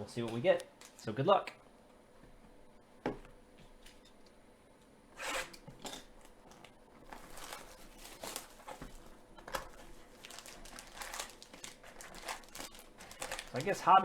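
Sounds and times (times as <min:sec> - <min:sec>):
packaging tearing and crinkling: 0:05.3 - 0:14.0.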